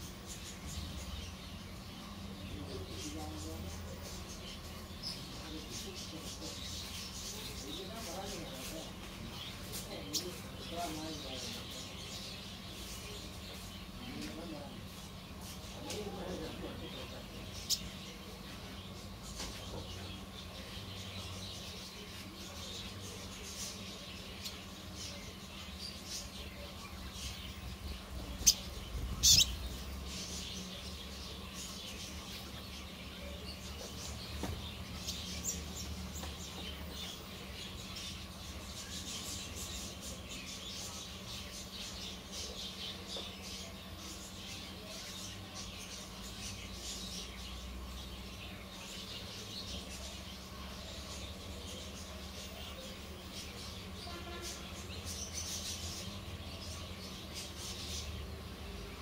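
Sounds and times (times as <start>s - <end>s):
faint steady hum: 0.0s - 59.0s
small birds chirping: 0.0s - 59.0s
sharp bird calls: 24.4s - 59.0s.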